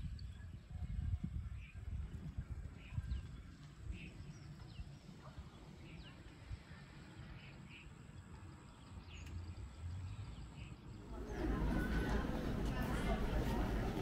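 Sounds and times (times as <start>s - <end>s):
low outdoor rumble: 10.2s - 14.0s.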